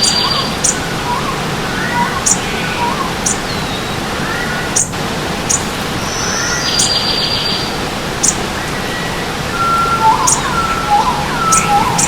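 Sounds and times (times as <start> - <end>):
birds chirping: 0.0 - 12.0
stream water rushing: 0.0 - 12.0
buzzy bird trill: 8.2 - 12.0.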